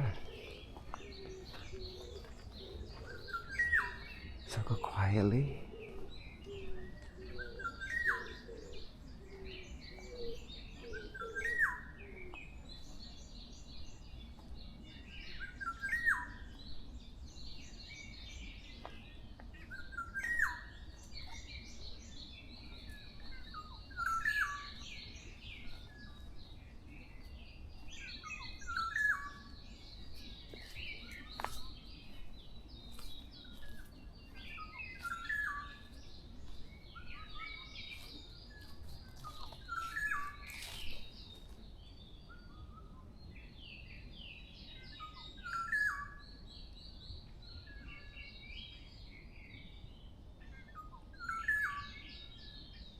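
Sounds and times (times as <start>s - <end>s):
low cooing: 0.0s - 4.0s, 5.5s - 12.4s
birds chirping and trilling: 0.0s - 52.9s.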